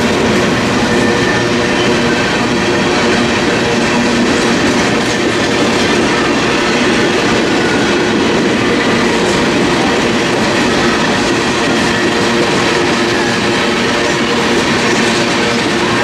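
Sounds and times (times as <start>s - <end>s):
steel wheels rolling on rails: 0.0s - 16.0s.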